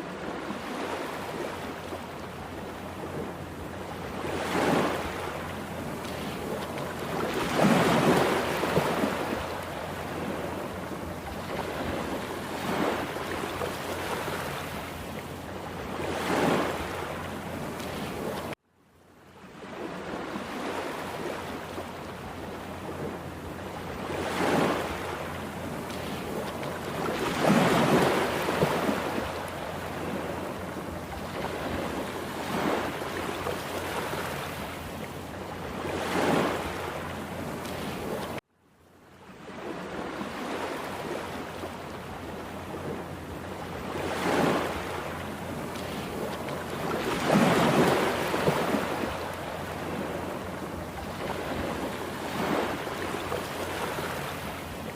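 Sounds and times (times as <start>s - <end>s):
rough sea surf: 0.0s - 18.6s, 19.5s - 38.4s, 39.2s - 54.9s
waves breaking loudly: 4.2s - 10.7s, 11.4s - 14.9s, 15.8s - 18.6s, 23.9s - 34.9s, 35.7s - 38.4s, 43.8s - 54.9s.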